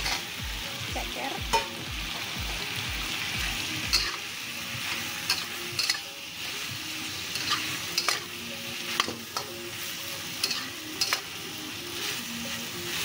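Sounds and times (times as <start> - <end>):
food sizzling in hot oil: 0.0 - 13.0
metal ladle scraping wok: 7.2 - 9.5, 10.2 - 11.3.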